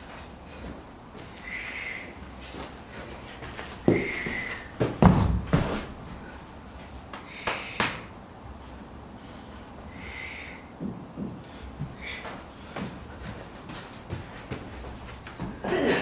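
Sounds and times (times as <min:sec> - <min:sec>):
heavy thuds: 0:02.9 - 0:06.4, 0:10.8 - 0:16.0.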